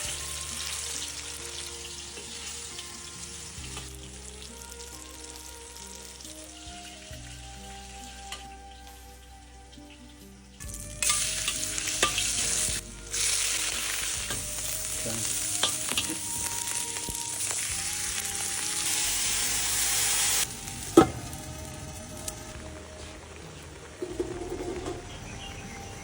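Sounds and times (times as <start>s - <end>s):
food sizzling in a wok: 0.0s - 26.0s.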